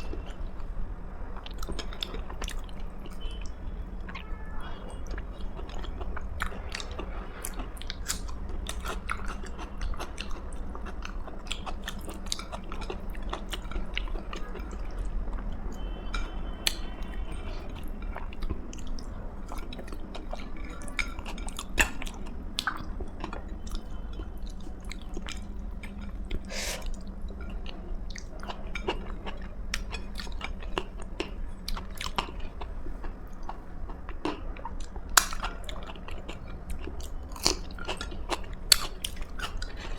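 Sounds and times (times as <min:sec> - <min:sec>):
person chewing food: 0:01.4 - 0:39.9
crunching and mouth clicks: 0:24.9 - 0:39.9.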